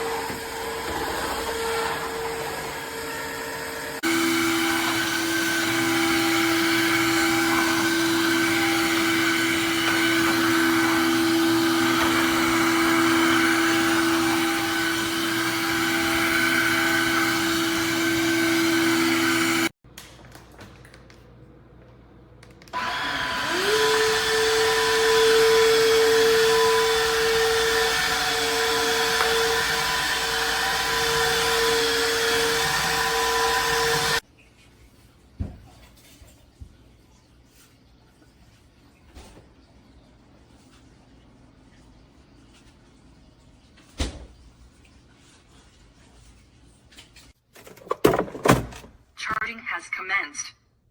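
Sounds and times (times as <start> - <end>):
floor cleaner motor whine: 0.0 - 19.7, 22.5 - 34.2.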